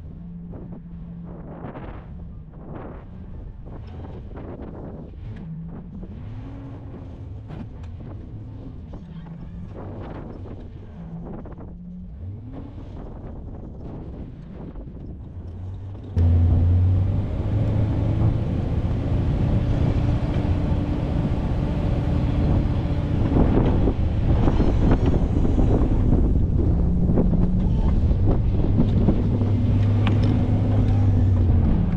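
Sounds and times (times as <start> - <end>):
engine drone: 0.0 - 31.9
wind on microphone: 0.0 - 31.9
vehicle engine running: 14.8 - 31.9.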